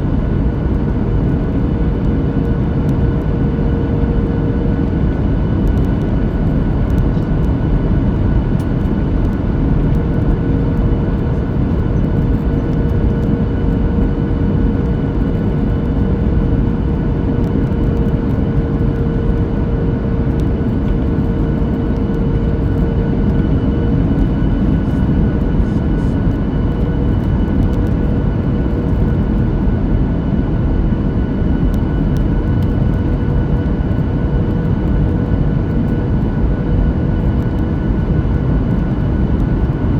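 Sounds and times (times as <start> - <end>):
faint steady hum: 0.0 - 30.0
airliner cabin airflow and engines: 0.0 - 39.9.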